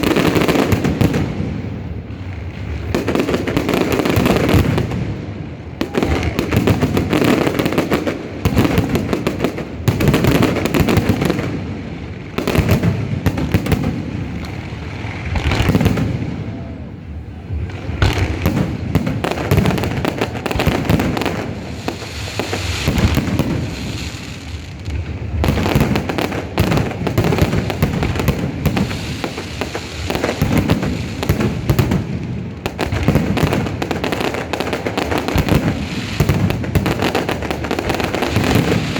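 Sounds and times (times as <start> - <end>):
fireworks booming bursts: 0.0 - 38.9
fireworks crackling: 0.0 - 38.9.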